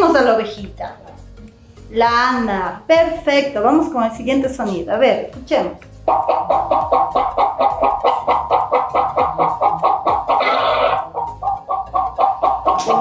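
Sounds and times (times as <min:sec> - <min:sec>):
hen clucking: 0:06.0 - 0:13.0
hen cackling harshly: 0:06.1 - 0:13.0.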